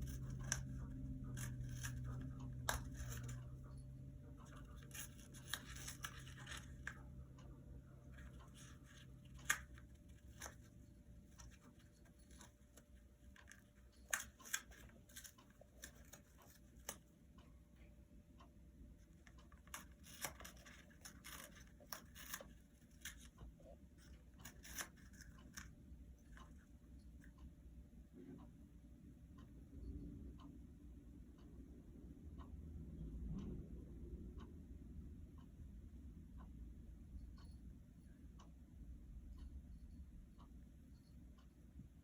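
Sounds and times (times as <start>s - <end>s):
parrot tearing toilet paper: 0.0s - 3.6s, 4.4s - 7.0s, 19.6s - 23.3s, 24.4s - 25.6s.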